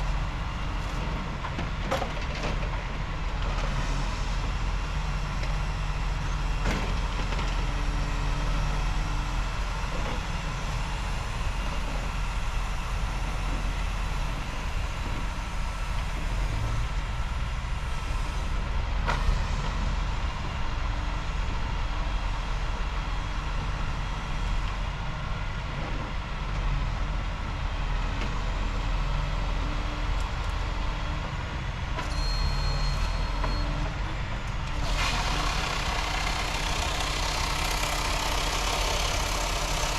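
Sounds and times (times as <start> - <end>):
truck engine running: 34.0 - 39.9.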